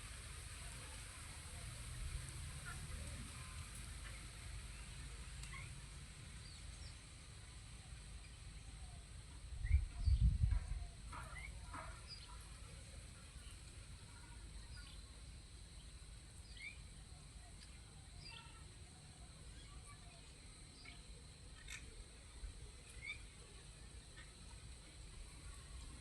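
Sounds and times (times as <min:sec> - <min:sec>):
wind buffeting microphone: 0:09.6 - 0:11.0
birds chirping: 0:11.1 - 0:12.4, 0:13.4 - 0:17.0, 0:17.6 - 0:18.6.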